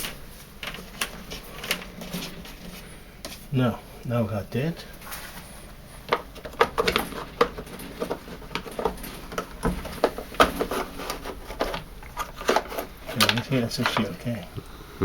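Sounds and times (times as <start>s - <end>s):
plastic parts clicking and knocking: 0.0s - 3.4s, 6.0s - 14.5s.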